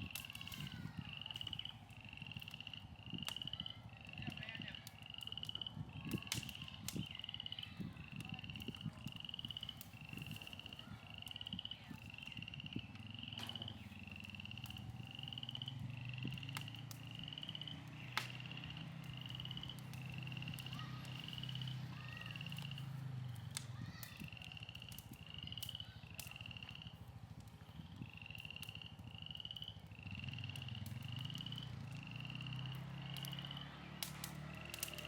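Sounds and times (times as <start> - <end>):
faint clicks: 8.1 - 35.0.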